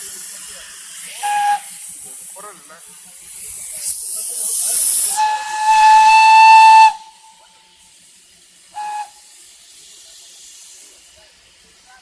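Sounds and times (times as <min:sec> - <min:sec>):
steam hiss: 0:00.0 - 0:12.0
steam locomotive whistle: 0:01.2 - 0:01.9, 0:05.0 - 0:07.5, 0:08.7 - 0:09.3.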